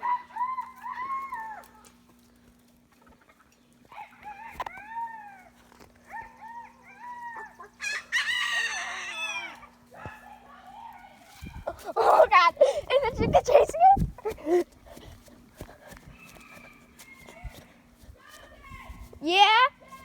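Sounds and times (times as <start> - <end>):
rooster crowing: 3.9 - 9.7, 15.9 - 17.8.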